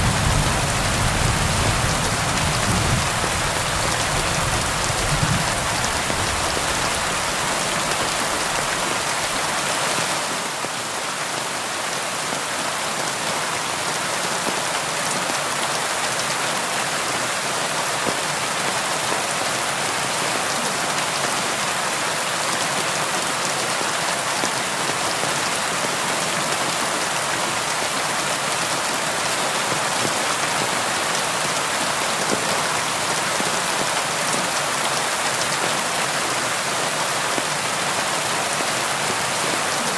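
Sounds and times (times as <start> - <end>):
rain against a window: 0.0 - 10.1.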